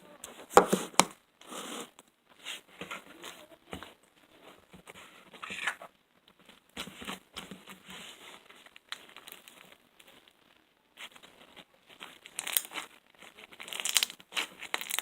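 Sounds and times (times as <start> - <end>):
foam bead slime crunching: 6.3 - 15.0.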